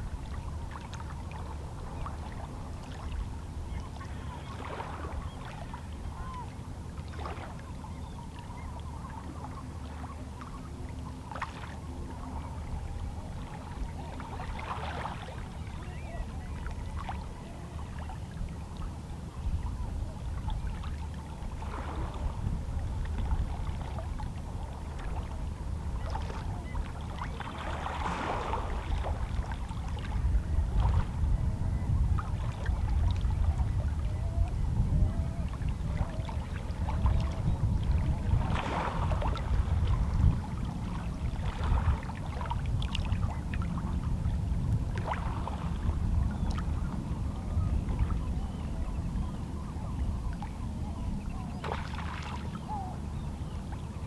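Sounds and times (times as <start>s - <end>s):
low rumble of sea: 0.0s - 54.0s
small waves lapping on rocks: 27.2s - 29.4s.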